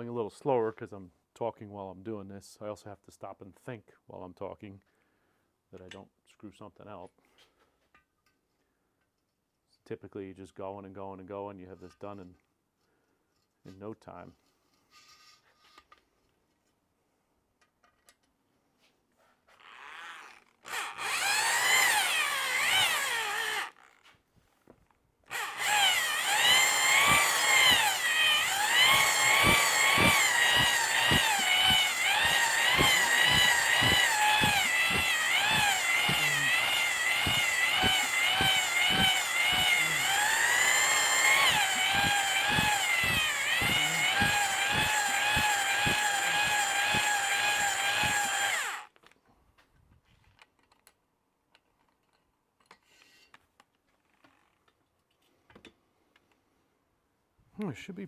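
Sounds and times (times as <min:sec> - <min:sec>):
power drill honing whine: 0:19.7 - 0:23.8, 0:25.3 - 0:48.9
rapid clicks: 0:25.3 - 0:48.8.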